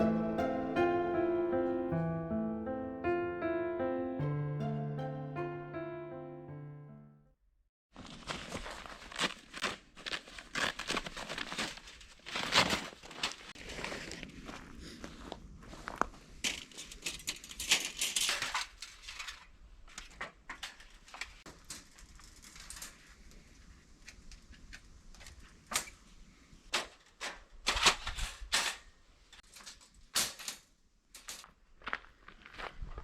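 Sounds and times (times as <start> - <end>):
rustling: 8.0 - 27.0.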